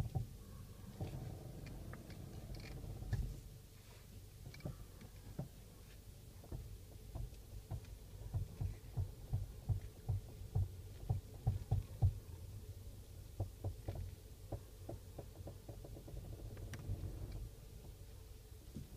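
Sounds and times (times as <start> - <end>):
suspension knocking and clicking: 0.0 - 3.4, 6.4 - 12.2, 13.4 - 18.0
low even hum: 0.0 - 18.9.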